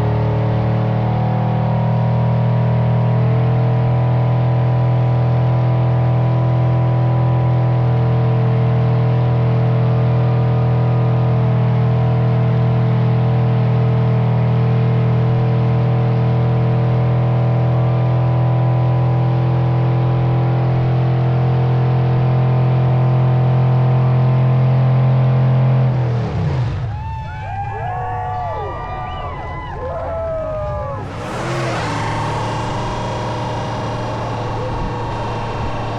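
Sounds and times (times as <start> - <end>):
car engine revving high: 30.7 - 35.9.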